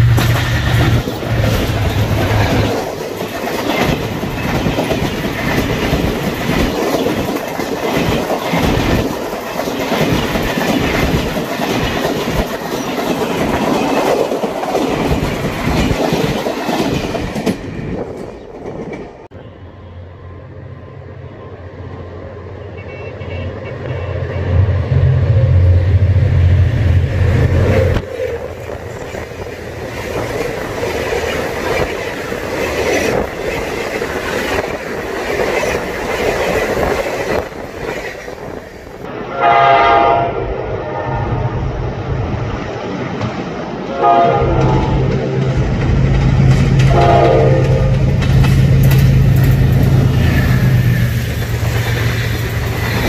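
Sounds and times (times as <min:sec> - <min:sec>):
diesel locomotive engine drone: 0:00.0 - 0:16.0, 0:16.9 - 0:53.0
train wheels clattering on rail: 0:00.0 - 0:19.3, 0:27.4 - 0:39.1, 0:42.5 - 0:53.0
locomotive horn: 0:22.5 - 0:25.7, 0:39.3 - 0:41.4, 0:43.9 - 0:45.6, 0:46.8 - 0:48.2.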